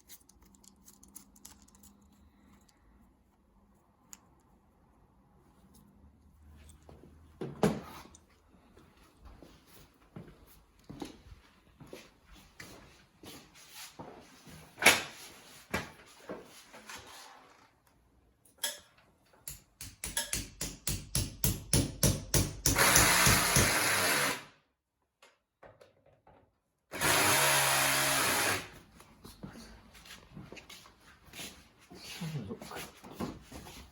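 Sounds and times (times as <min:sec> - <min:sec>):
power drill running: 0:22.8 - 0:24.5, 0:26.9 - 0:28.8.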